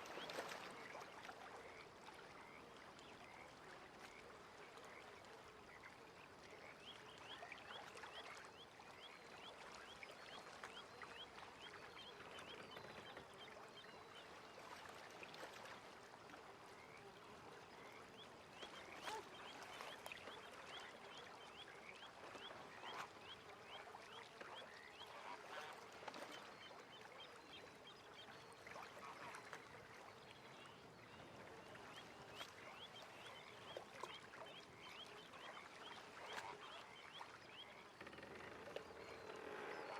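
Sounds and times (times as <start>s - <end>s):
water splashes: 0.0s - 2.3s, 28.5s - 39.9s.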